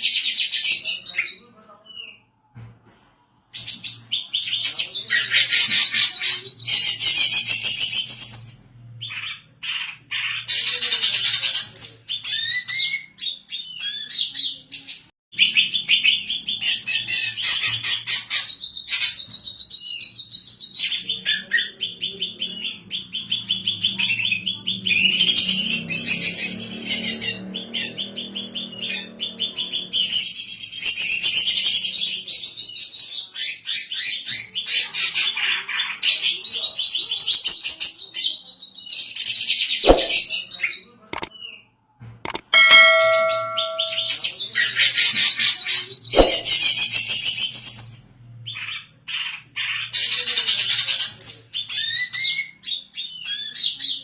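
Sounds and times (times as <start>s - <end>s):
bird singing high chirps and trills: 42.6s - 44.3s.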